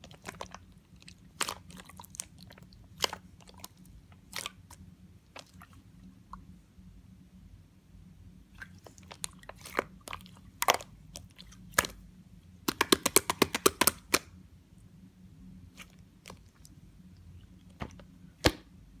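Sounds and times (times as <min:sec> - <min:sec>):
slime air pockets popping: 0:12.7 - 0:14.3, 0:17.8 - 0:18.7.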